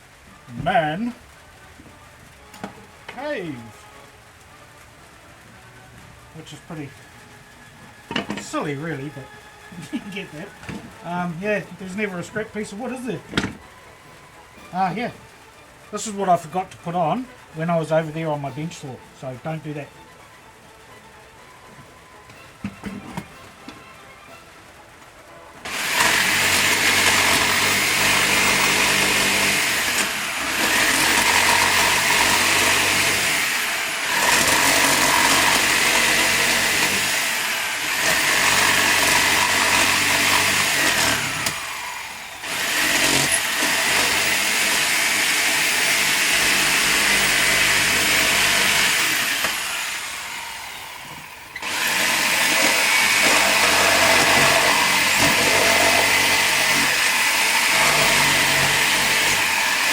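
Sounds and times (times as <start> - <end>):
power tool cutting wood: 8.1 - 13.7, 25.6 - 59.9.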